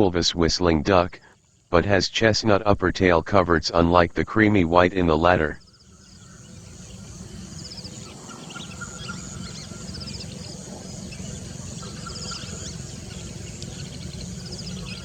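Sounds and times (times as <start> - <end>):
steady low rumble: 0.0 - 15.0
bird chirps: 5.2 - 15.0.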